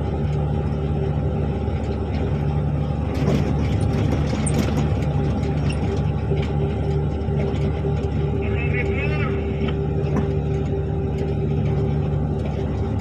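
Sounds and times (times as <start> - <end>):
diesel engine running: 0.0 - 13.0
light rattles: 1.7 - 8.4.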